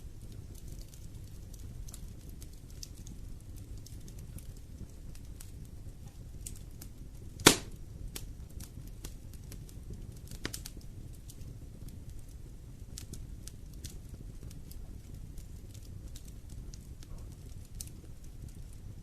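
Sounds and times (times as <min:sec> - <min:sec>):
wood fire crackling: 0:00.0 - 0:19.0
sharp pop of fire: 0:07.4 - 0:07.8.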